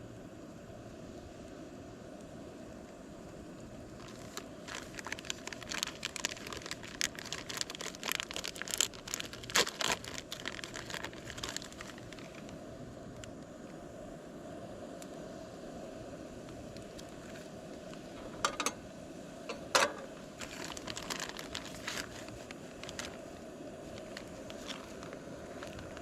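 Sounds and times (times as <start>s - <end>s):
crinkling and rustling: 4.0s - 12.6s, 16.8s - 18.8s, 19.5s - 26.0s.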